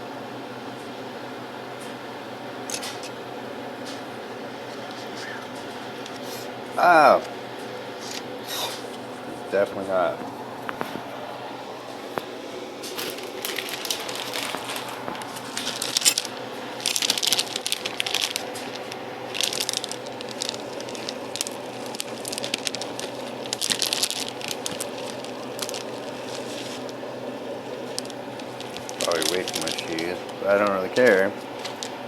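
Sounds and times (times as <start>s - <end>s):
low kitchen hum: 0.0s - 32.0s
food wrapping crinkling: 12.8s - 32.0s.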